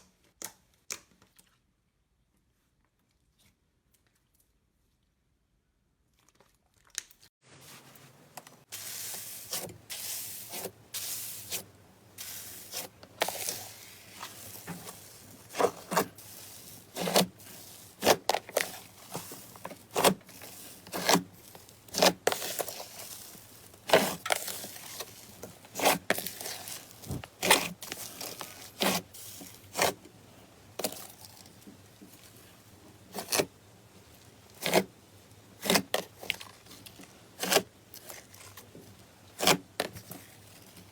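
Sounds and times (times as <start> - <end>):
soft rubbing of slime: 7.6 - 30.0.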